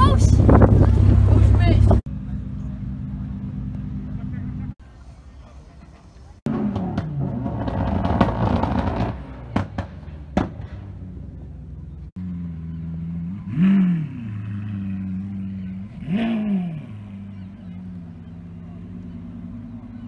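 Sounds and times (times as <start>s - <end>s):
loud car engine running: 0.0s - 4.8s, 6.5s - 20.0s
car engine idling: 0.0s - 6.8s, 9.2s - 13.5s, 17.0s - 20.0s
engine revving: 6.5s - 20.0s.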